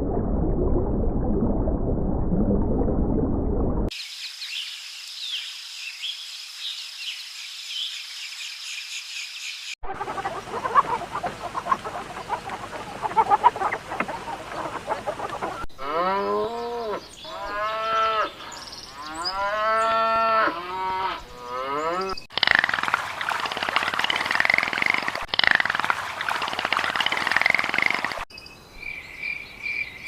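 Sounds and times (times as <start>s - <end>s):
harsh animal sound: 9.8s - 16.6s
cattle mooing: 15.8s - 18.3s, 19.0s - 22.2s
scattered chirps: 22.3s - 28.2s.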